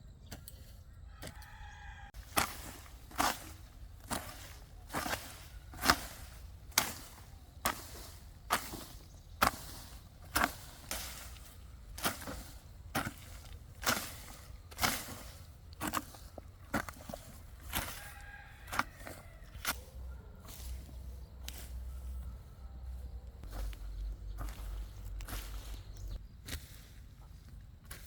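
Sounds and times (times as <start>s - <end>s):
hand tool chopping: 2.2s - 19.9s.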